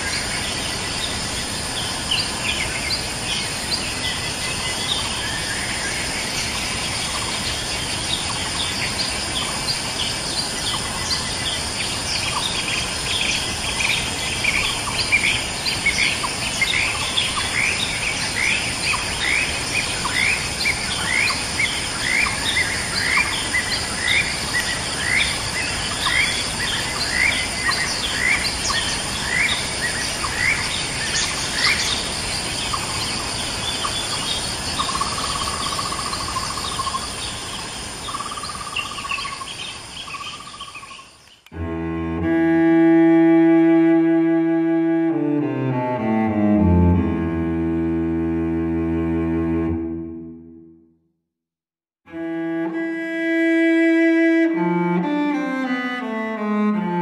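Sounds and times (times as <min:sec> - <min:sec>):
insects droning: 0:00.0 - 0:49.8.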